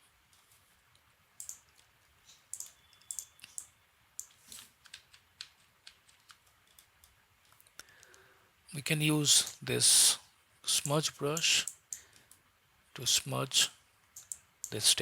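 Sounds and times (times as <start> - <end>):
computer keyboard and mouse clicks: 1.4 - 1.9, 2.5 - 8.2, 14.1 - 14.8.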